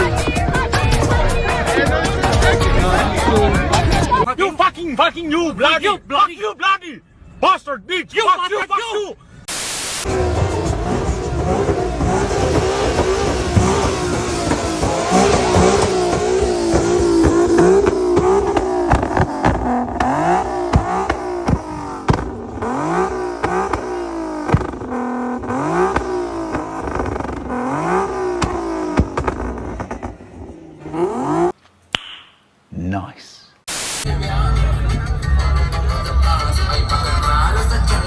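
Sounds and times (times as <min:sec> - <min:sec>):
truck engine revving: 0:09.6 - 0:31.6.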